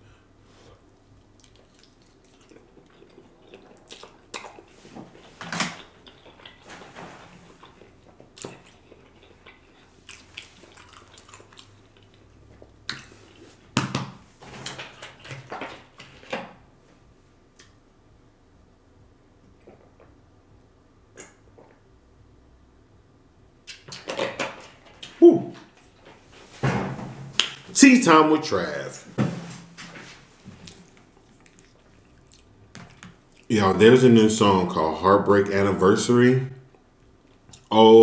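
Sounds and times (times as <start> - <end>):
chewing pasta with mouth smacks: 0.8 - 13.6, 30.6 - 33.5.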